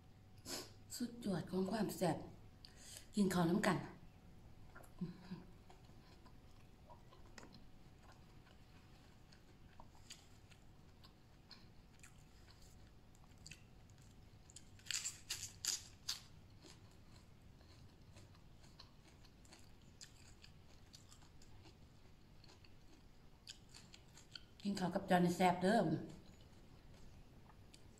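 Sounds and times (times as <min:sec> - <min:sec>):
chewing and crunching food: 0:04.5 - 0:27.9.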